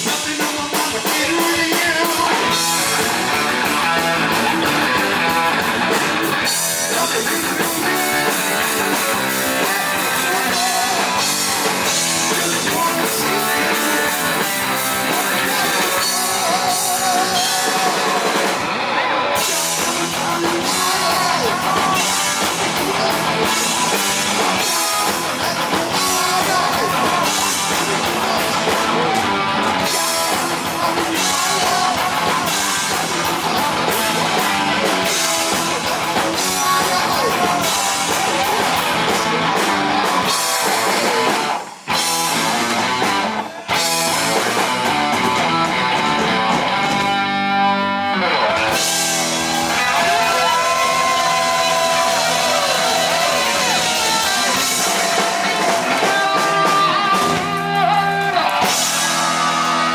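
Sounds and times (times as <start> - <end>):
heavy metal band playing live: 0.0 - 59.9.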